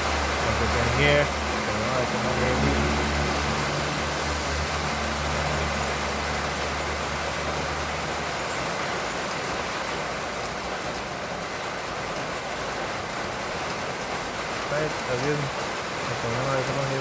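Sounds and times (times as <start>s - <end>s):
low engine hum: 0.0s - 10.1s
heavy rain falling: 0.0s - 17.0s.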